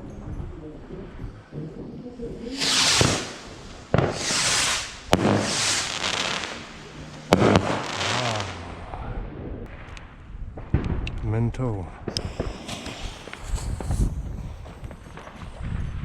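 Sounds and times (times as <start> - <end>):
fireworks hissing whooshes: 2.2 - 9.0, 12.1 - 15.6
fireworks sharp cracks: 2.2 - 9.0, 12.0 - 15.9.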